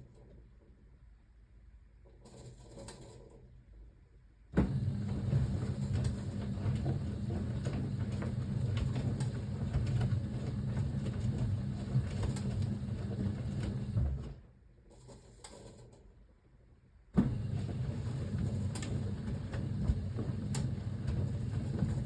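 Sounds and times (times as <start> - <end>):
washing machine motor humming: 4.6 - 14.4, 17.2 - 22.0.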